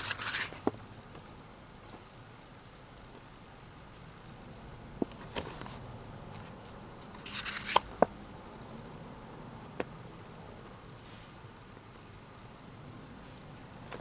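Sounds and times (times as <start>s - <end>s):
page turning rustle: 0.0s - 0.8s, 5.2s - 5.8s, 7.2s - 8.0s.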